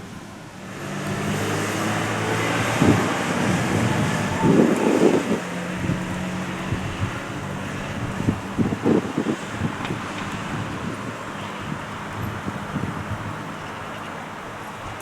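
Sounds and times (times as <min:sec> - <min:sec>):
railway locomotive humming: 0:00.0 - 0:15.0
wind buffeting microphone: 0:00.0 - 0:15.0.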